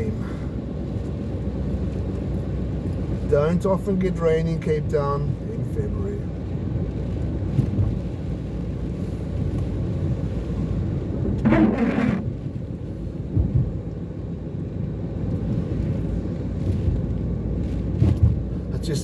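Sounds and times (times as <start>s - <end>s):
car driving on wet road: 0.0s - 19.0s.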